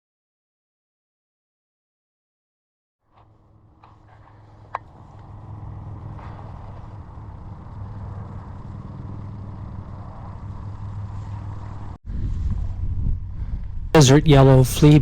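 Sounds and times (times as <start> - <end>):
low mechanical hum: 3.2 - 15.0.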